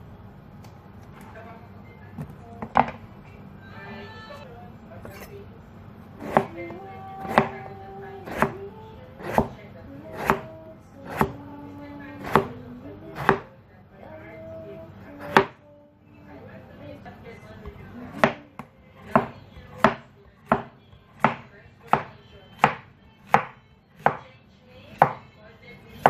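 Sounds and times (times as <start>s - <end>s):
knife chopping on cutting board: 6.2s - 6.6s, 7.2s - 8.6s, 9.2s - 10.5s, 11.1s - 11.4s, 12.2s - 13.5s, 15.2s - 15.5s, 18.1s - 24.2s, 25.0s - 25.2s.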